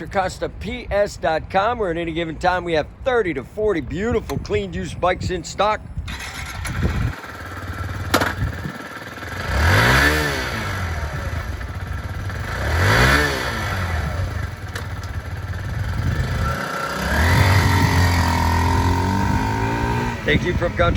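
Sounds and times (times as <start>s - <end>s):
motorcycle engine revving: 6.1s - 20.9s.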